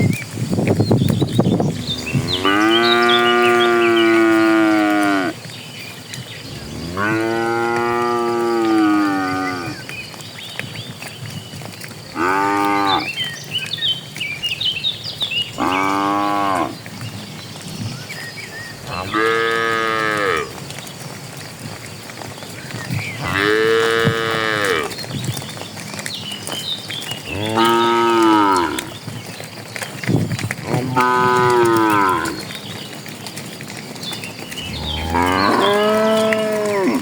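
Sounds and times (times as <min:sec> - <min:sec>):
birds chirping: 0:00.0 - 0:37.0
cattle mooing: 0:01.6 - 0:05.4, 0:06.5 - 0:09.8, 0:12.2 - 0:13.1, 0:15.6 - 0:16.8, 0:18.8 - 0:20.6, 0:23.2 - 0:25.0, 0:27.3 - 0:28.9, 0:30.6 - 0:32.4, 0:34.6 - 0:37.0.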